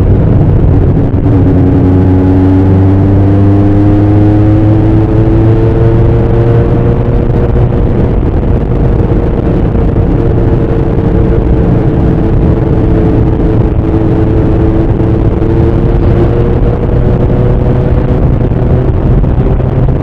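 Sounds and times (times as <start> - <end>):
motorcycle engine and exhaust: 0.0 - 20.0.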